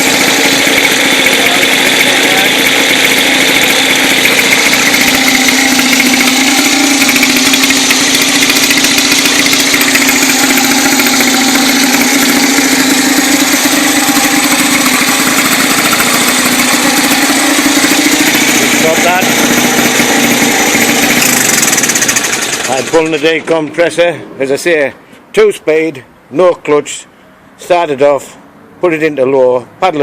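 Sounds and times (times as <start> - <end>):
two-stroke engine running: 0.0 - 24.0.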